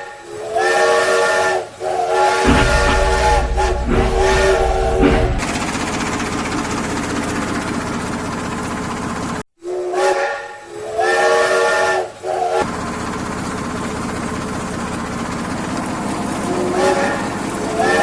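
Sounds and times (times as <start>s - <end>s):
train whistle blasts: 0.0s - 5.4s, 9.7s - 12.6s, 16.6s - 18.0s
train hissing running noise: 0.0s - 9.4s, 10.2s - 18.0s.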